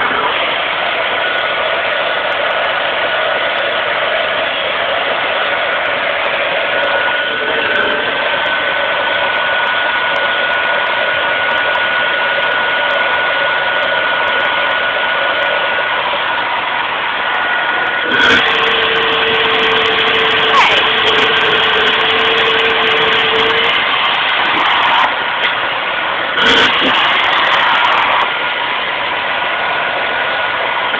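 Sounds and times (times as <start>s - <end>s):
vacuum cleaner motor whining: 16.8s - 25.6s, 26.3s - 30.9s.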